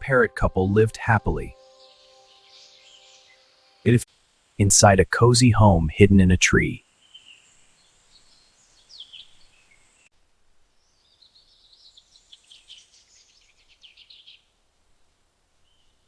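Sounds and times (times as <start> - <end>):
faint bird chirps: 1.0 - 4.1, 6.9 - 10.1, 10.7 - 14.6, 15.6 - 16.0.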